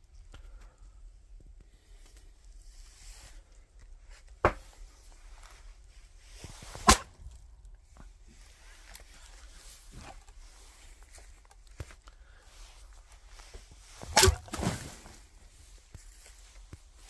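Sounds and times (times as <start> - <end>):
axe striking a log: 6.8 - 7.2, 14.0 - 14.9
wood splitting apart: 6.8 - 7.4, 14.0 - 15.1
shuffling footsteps: 9.8 - 17.0.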